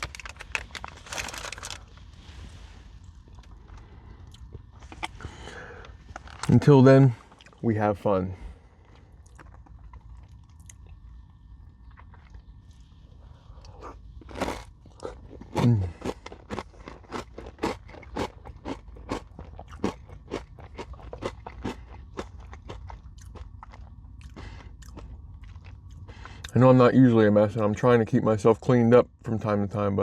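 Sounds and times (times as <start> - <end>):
crunchy chewing: 8.8 - 26.6
crunchy granola bar bite: 13.8 - 25.7.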